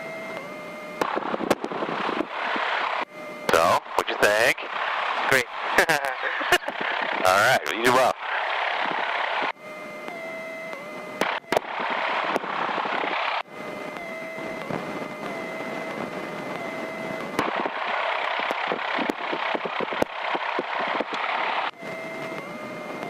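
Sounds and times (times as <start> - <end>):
airplane engine drone: 0.0 - 23.0
sharp clicks and pops: 8.8 - 13.2, 13.9 - 17.8, 18.4 - 23.0.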